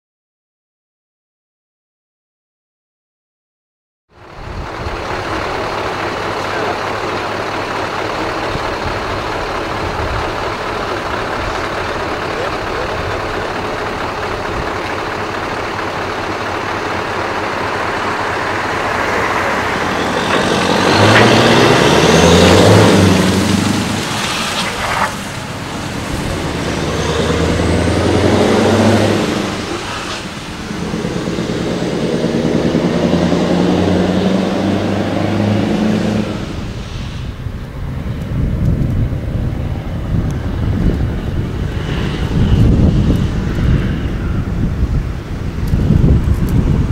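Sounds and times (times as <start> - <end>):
wind rumble on microphone: 4.2 - 5.4, 8.3 - 11.8, 36.2 - 46.9
trucks roaring past: 4.2 - 46.9.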